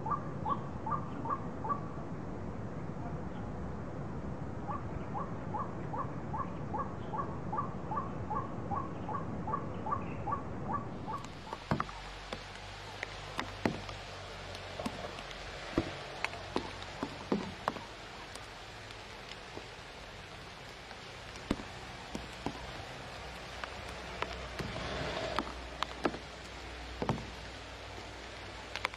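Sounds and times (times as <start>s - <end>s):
waterhen repeated call notes: 0.0s - 1.9s, 4.7s - 18.8s.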